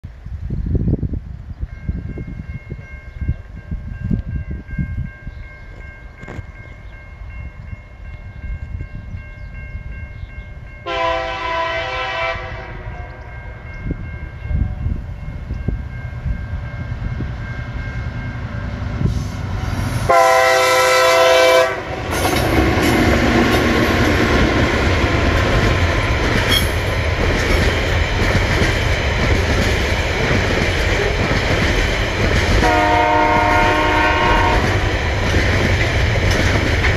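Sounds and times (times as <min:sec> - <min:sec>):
wind buffeting microphone: 0:00.0 - 0:36.9
diesel locomotive engines running: 0:03.3 - 0:36.9
locomotive horn blasts: 0:10.8 - 0:13.6, 0:20.0 - 0:23.0, 0:32.6 - 0:34.9.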